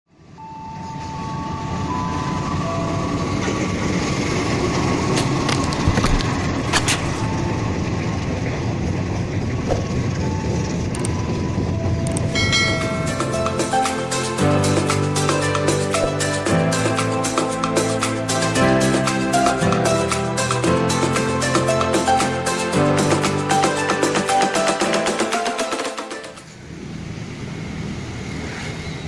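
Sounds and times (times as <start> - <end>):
diesel locomotive engine rumble: 0.1 - 29.0
wheels clicking over rail joints: 0.7 - 22.4.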